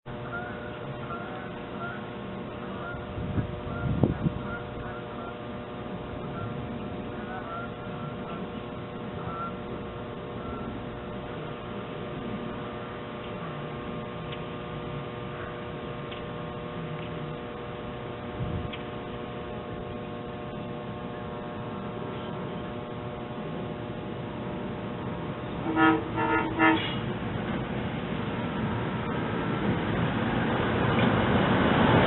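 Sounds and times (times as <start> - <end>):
train hum and rumble: 0.0 - 32.0
train horn blasts: 0.1 - 11.9, 25.5 - 27.2.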